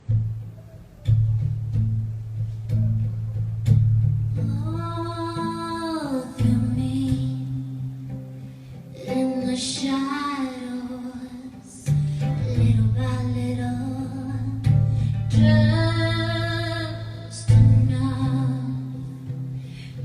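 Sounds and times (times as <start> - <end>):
low bass note: 0.0 - 5.3
acoustic guitar chords: 0.0 - 20.0.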